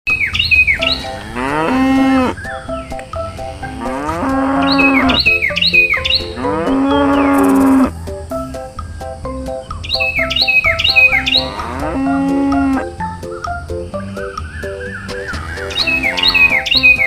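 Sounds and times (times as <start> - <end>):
short chirping notes: 0.1 - 9.0
cow mooing: 0.8 - 2.4, 3.5 - 5.4, 6.2 - 7.9, 11.2 - 12.9, 15.4 - 17.0.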